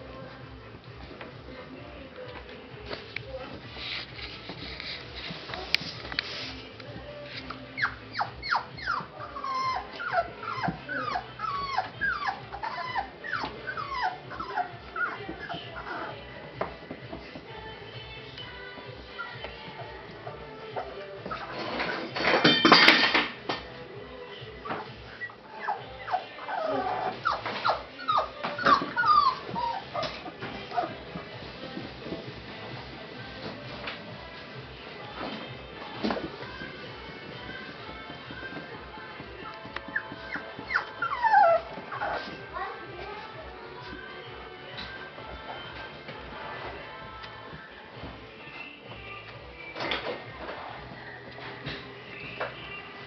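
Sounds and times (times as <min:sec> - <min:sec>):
puppies whining and squealing: 0:07.6 - 0:16.3, 0:19.0 - 0:19.5, 0:20.3 - 0:22.2, 0:24.4 - 0:31.3, 0:35.2 - 0:42.9.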